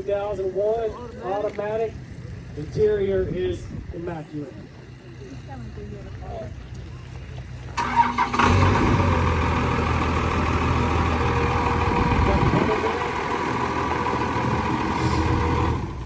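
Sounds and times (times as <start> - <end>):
vehicle engine running loudly: 7.8 - 16.0.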